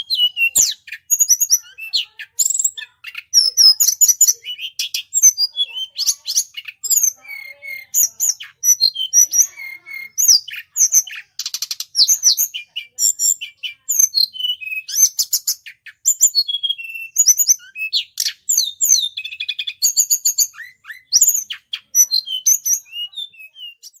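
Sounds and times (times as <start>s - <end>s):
birds chirping rapidly: 0.0s - 24.0s
buzzy bird trill: 0.0s - 24.0s.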